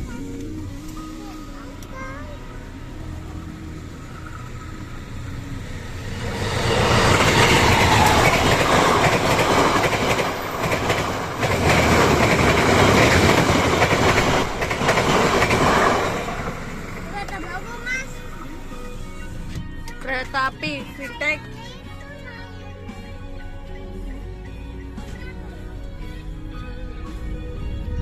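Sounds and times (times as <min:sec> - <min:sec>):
train wheels clattering on rails: 0:06.1 - 0:17.5.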